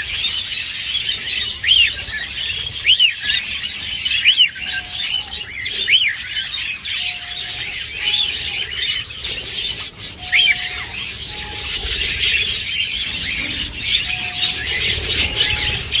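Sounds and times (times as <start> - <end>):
budgerigars chattering and chirping: 0.0 - 16.0.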